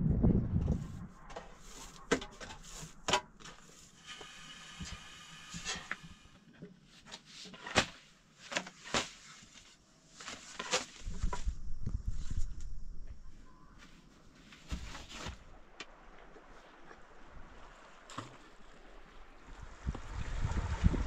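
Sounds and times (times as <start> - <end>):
rasping scrape: 0.8 - 6.4.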